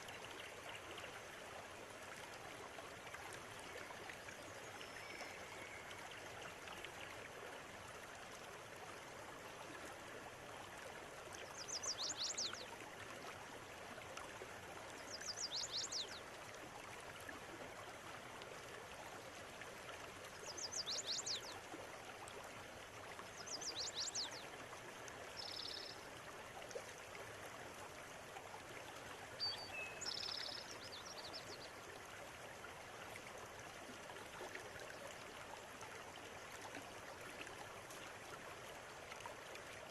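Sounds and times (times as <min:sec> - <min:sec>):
river flowing over stones: 0:00.0 - 0:39.9
small bird singing: 0:25.4 - 0:26.0, 0:29.4 - 0:31.5.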